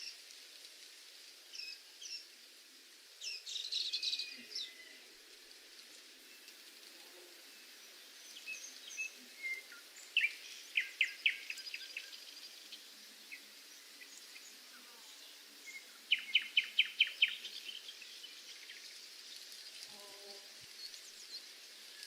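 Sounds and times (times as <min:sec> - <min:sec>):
outdoor background hiss: 0:00.0 - 0:22.0
songbird singing: 0:03.1 - 0:22.0
bird chirps: 0:15.7 - 0:19.0.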